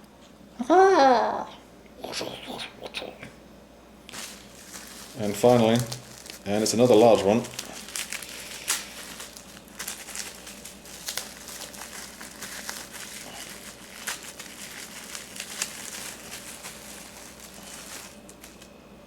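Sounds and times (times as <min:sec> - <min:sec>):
bubble wrap crinkling: 0:04.1 - 0:19.0.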